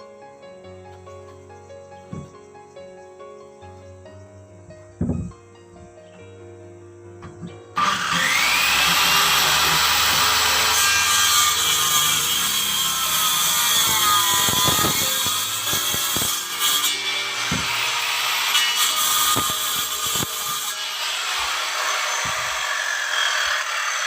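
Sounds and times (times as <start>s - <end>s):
sharp knocks: 2.1s - 2.4s, 17.5s - 17.9s
power tool cutting wood: 7.8s - 24.0s.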